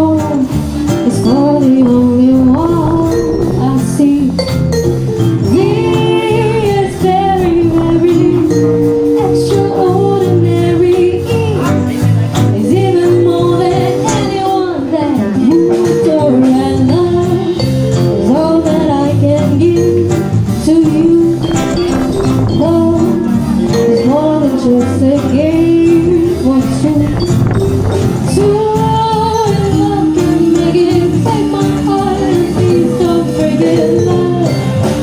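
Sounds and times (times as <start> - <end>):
bass guitar: 0.0 - 35.0
drum kit: 0.0 - 35.0
guitar: 0.0 - 35.0
woman singing with vibrato: 0.0 - 35.0
held horn notes: 1.1 - 11.4.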